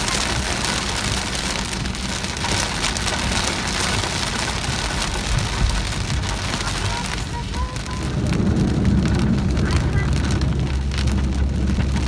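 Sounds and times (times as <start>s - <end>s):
car rumbling on road: 0.0s - 12.0s
heavy rain on car roof: 0.0s - 12.0s.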